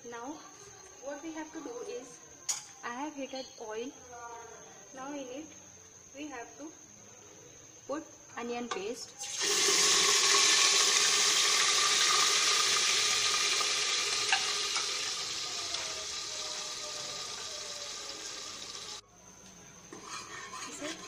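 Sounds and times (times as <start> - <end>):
paste sizzling in hot oil: 9.2 - 19.0.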